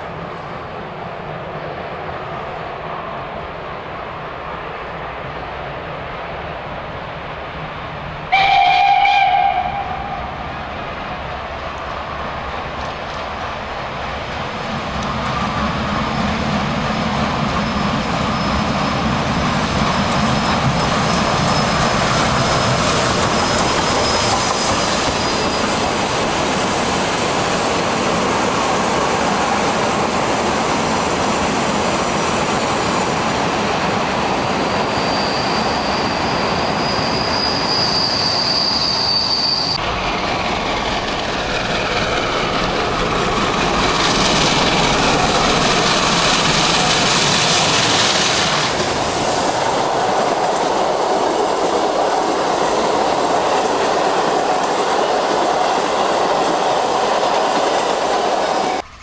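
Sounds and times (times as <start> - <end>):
wheels rolling on rail: 0.0 - 59.0
high steel wheel squeal: 17.6 - 19.1, 20.2 - 22.1, 22.8 - 26.0, 34.6 - 39.8.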